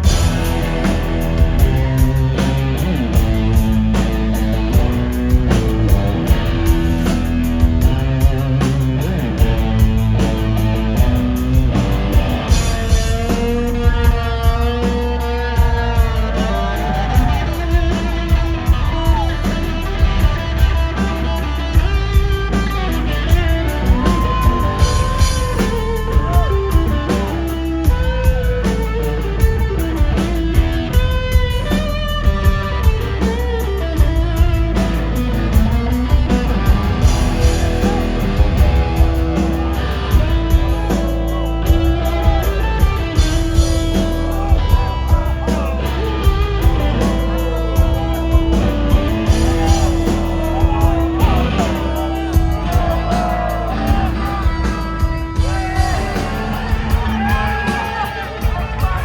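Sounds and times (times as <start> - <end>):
drum kit beat: 0.0 - 59.0
electric guitar lines: 0.0 - 59.0.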